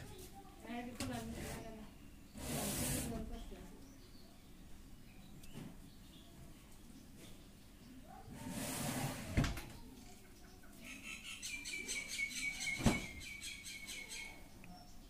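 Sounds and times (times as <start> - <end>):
small bird chirping: 9.8 - 15.0.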